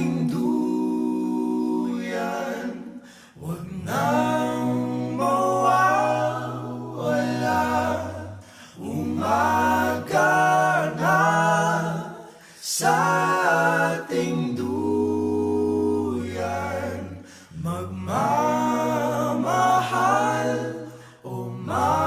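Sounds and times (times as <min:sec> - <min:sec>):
a cappella vocal harmony: 0:00.0 - 0:22.0.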